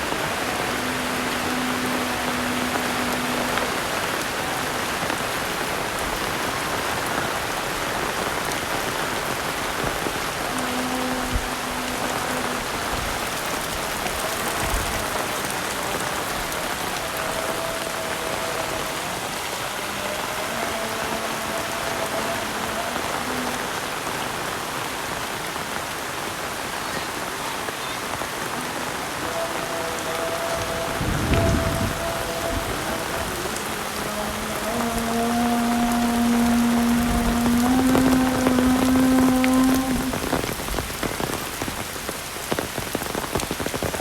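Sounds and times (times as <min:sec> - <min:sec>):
heavy rain hissing: 0:00.0 - 0:44.0.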